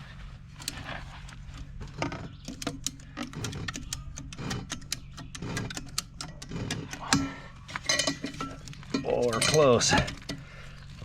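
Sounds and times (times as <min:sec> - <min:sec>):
steady low hum: 0:00.0 - 0:11.0
hand ratchets clicking: 0:02.5 - 0:07.2.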